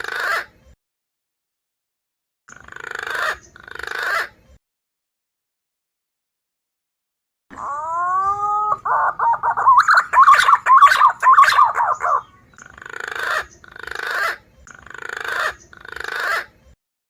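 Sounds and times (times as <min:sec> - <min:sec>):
pigeon calls from bird lure: 0:07.6 - 0:12.3.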